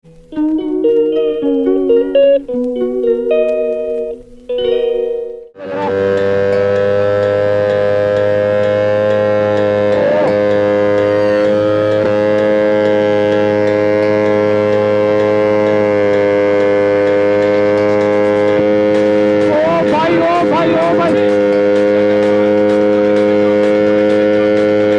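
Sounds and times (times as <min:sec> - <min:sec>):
loud drone of held pitches: 0:00.1 - 0:24.9.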